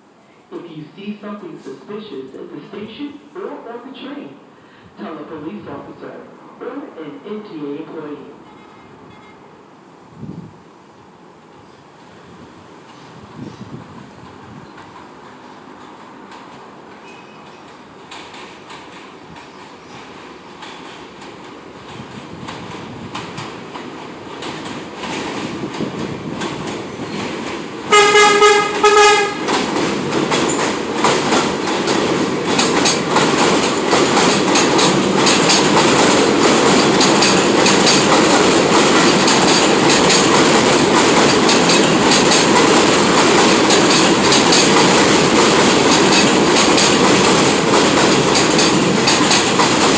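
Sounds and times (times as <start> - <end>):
subway train passing: 0.0 - 49.9
wheels clacking over rail joints: 15.8 - 49.9
train horn blasts: 27.9 - 29.4.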